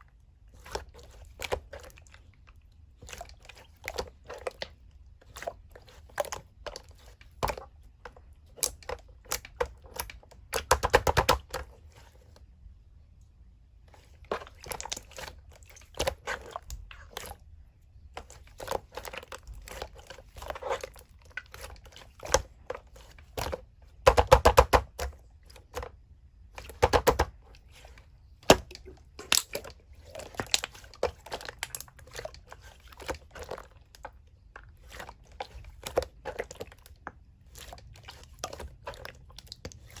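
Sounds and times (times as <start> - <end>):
slime squished by hand: 13.9 - 40.0.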